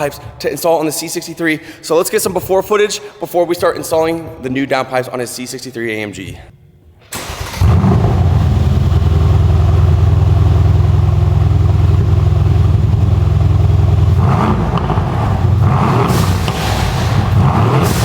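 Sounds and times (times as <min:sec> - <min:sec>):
car engine idling: 0:07.2 - 0:18.0.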